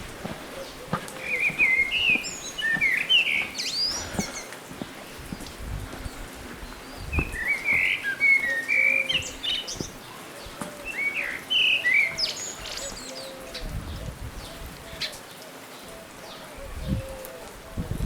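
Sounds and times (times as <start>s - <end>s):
songbird warbling: 0.5s - 4.5s, 6.8s - 13.6s.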